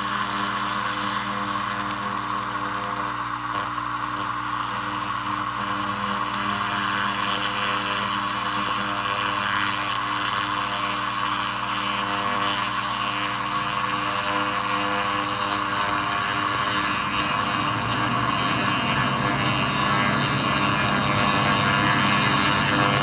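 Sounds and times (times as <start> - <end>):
held hum tones: 12.7 - 23.0
laser rust remover hissing: 12.7 - 23.0.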